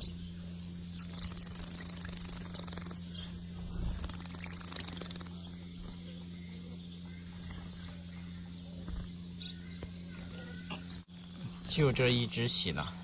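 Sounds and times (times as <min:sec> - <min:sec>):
steady low hum: 0:00.0 - 0:13.0
birds splashing in water: 0:01.0 - 0:05.6.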